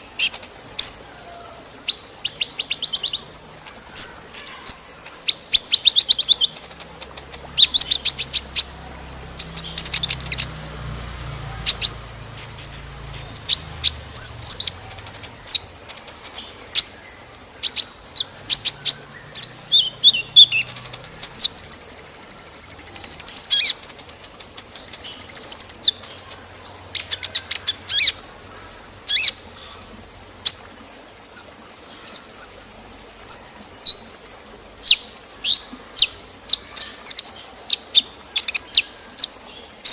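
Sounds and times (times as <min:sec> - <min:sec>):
faint rush of water: 0:00.0 - 0:39.9
bird chirps and trills: 0:01.9 - 0:10.7, 0:11.6 - 0:30.7.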